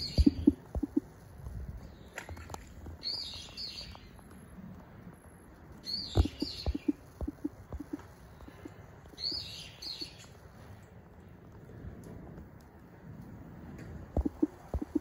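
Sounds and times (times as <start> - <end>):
bird calling: 0.0 - 1.1, 5.8 - 10.4, 14.2 - 15.0
soft low knocks: 6.2 - 8.0, 14.1 - 15.0.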